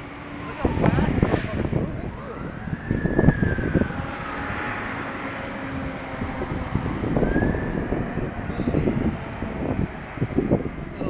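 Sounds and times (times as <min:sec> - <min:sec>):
distant siren: 0:00.0 - 0:10.9
storm wind gusting: 0:00.0 - 0:11.0.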